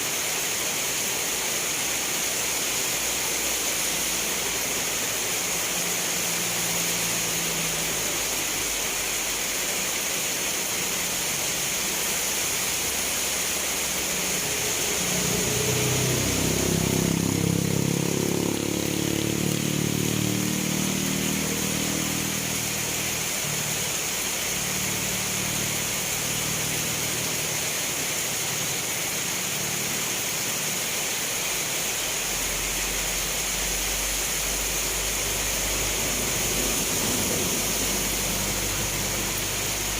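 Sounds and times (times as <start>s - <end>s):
steady rain falling: 0.0s - 39.9s
low rumble: 33.6s - 39.9s.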